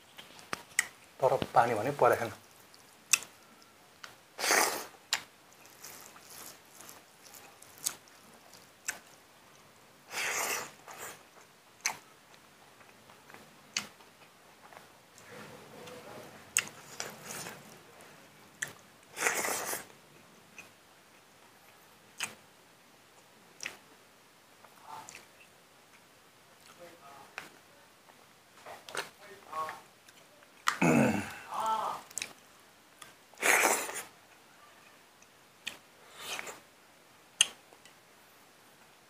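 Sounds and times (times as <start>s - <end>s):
man chewing food: 0.0s - 1.2s, 2.3s - 22.4s, 23.1s - 23.9s, 28.0s - 29.1s, 29.9s - 31.4s, 32.1s - 34.4s, 35.2s - 36.6s
lip smacks and clicks: 0.1s - 1.6s, 2.5s - 3.4s, 5.1s - 9.6s, 10.6s - 14.8s, 18.6s - 19.9s, 22.2s - 22.4s, 23.6s - 23.9s, 24.6s - 26.8s, 29.7s - 30.8s, 32.1s - 32.4s, 35.2s - 36.6s, 37.4s - 38.0s.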